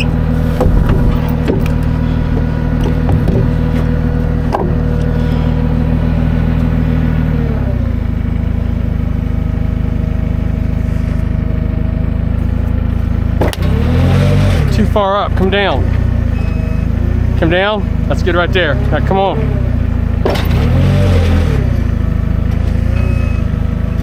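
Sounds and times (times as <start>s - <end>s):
heavy engine running: 0.0s - 24.0s
short knocks: 0.4s - 4.9s.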